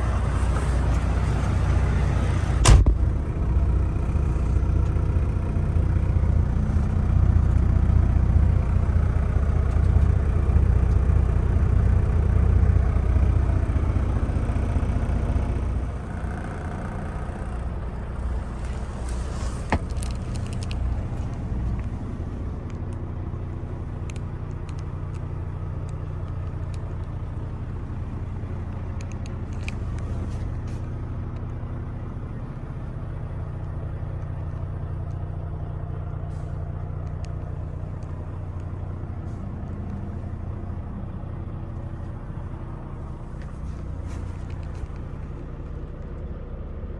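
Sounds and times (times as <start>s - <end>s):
diesel truck engine idling: 0.0s - 46.9s.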